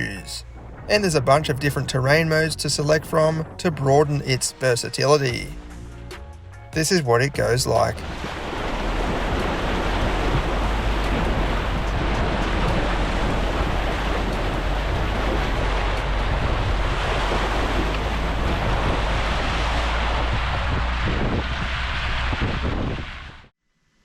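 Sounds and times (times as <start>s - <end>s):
vehicle engine and road rumble: 0.0s - 23.5s
wind buffeting microphone: 7.8s - 23.5s.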